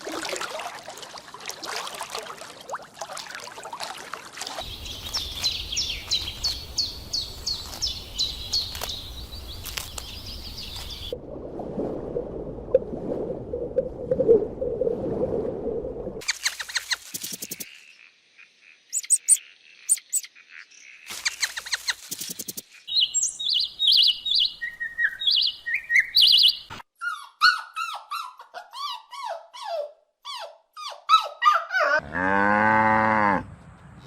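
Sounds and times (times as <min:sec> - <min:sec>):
bird chirping high: 0:04.6 - 0:11.2, 0:18.9 - 0:28.3.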